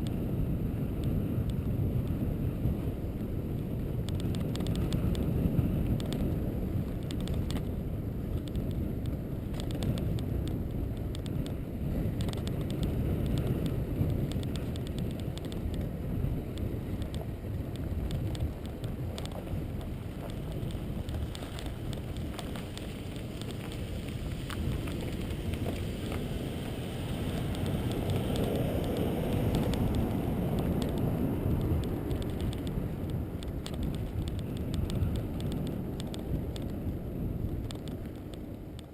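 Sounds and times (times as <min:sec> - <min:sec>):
vehicle rumbling on rough road: 0:00.0 - 0:38.9
small rattles and clicks: 0:03.5 - 0:38.9.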